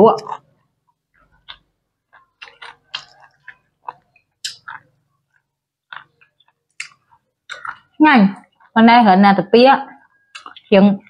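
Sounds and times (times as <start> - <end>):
people chewing crunchy food: 0.2 - 8.8, 10.0 - 11.0
wet mouth clicks: 1.2 - 7.9, 10.3 - 10.8.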